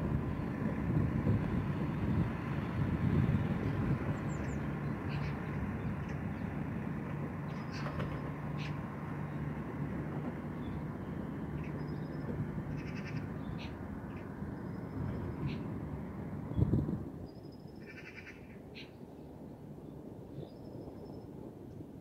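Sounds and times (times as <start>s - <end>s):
steady low rumble: 0.0s - 17.5s.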